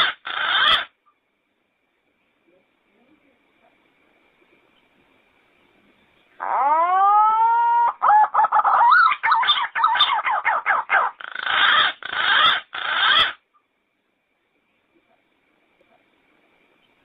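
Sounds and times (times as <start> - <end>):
pigeon calling: 0.0 - 0.9, 6.4 - 13.4.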